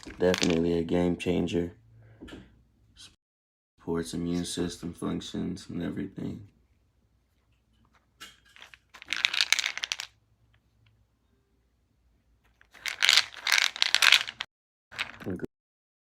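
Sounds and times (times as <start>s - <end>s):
pills rattling in plastic bottle: 0.0s - 0.7s, 8.5s - 10.2s, 12.5s - 15.5s.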